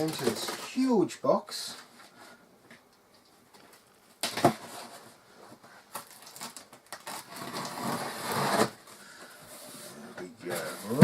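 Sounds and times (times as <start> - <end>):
blade tearing cardboard: 6.4 - 8.8.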